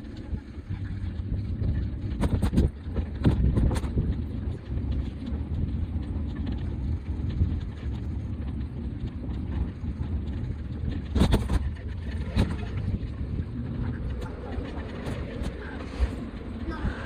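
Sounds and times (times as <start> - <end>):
bicycle rolling rumble: 0.0 - 17.0.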